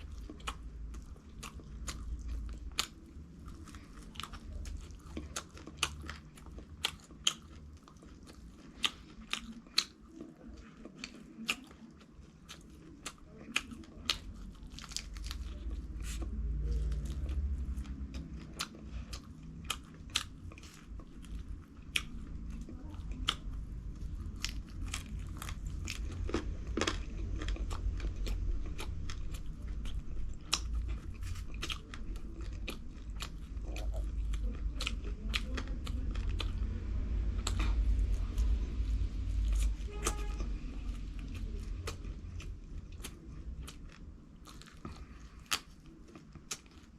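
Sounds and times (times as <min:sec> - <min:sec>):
person chewing crunchy food: 0:00.0 - 0:46.9
low rumble: 0:13.9 - 0:46.8.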